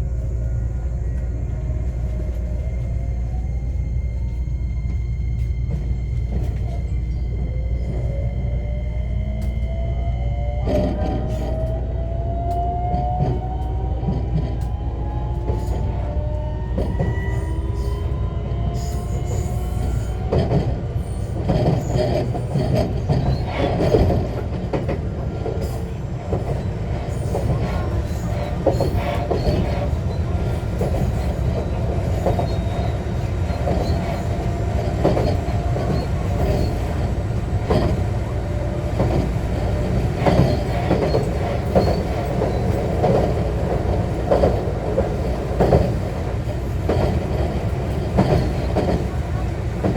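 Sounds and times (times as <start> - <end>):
train interior rumble: 0.0 - 49.9
rail-joint clacks: 12.5 - 49.9.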